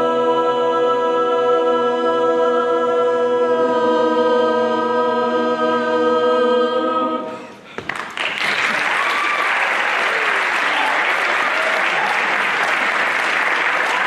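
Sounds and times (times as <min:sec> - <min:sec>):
vocal ensemble holding a chord: 0:00.0 - 0:07.7.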